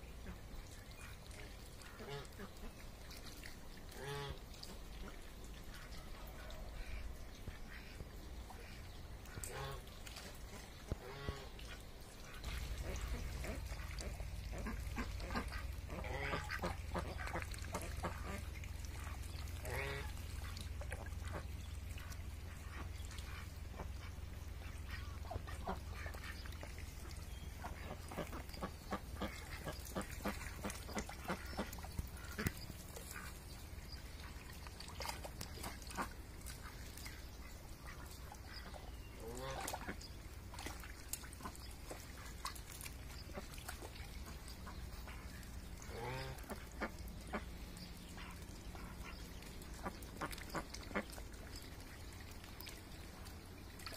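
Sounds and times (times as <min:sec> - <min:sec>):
ducks quacking: 0:00.2 - 0:02.8, 0:03.9 - 0:53.9
small clicks and splashes: 0:00.2 - 0:53.9.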